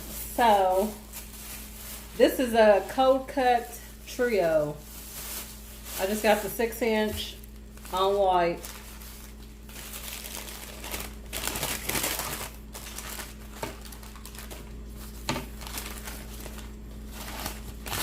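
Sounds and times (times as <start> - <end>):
sandwich wrapping crinkling: 0.0 - 3.3, 4.6 - 6.8, 7.4 - 18.0.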